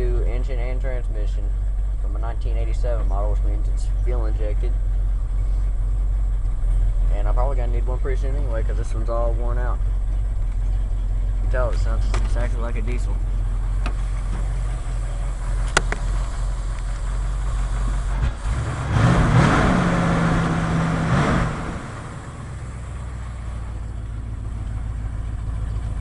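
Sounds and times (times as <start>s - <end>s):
truck engine idling and revving: 0.0s - 26.0s
sharp click: 15.6s - 16.1s.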